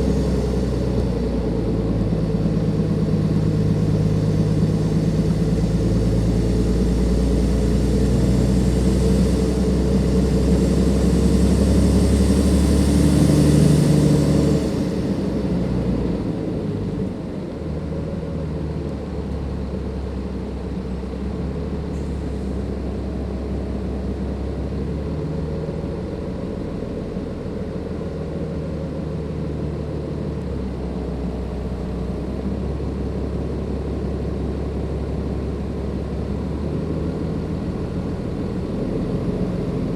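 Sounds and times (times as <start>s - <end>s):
bus diesel engine: 0.0s - 39.9s.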